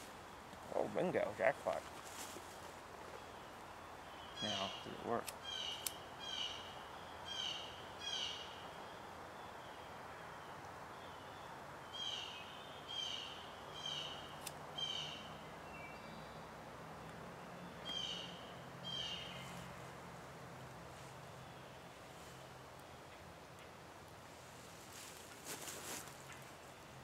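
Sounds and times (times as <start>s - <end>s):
bird harsh calls: 4.2s - 6.7s, 7.3s - 8.7s, 11.9s - 15.4s, 17.8s - 19.6s.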